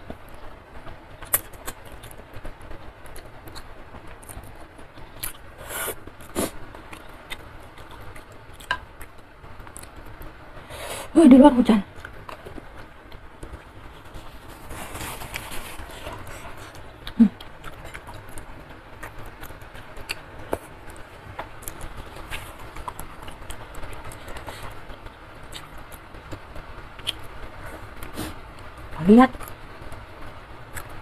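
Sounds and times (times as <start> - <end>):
person chewing noodles: 1.2 - 10.3, 12.0 - 26.4.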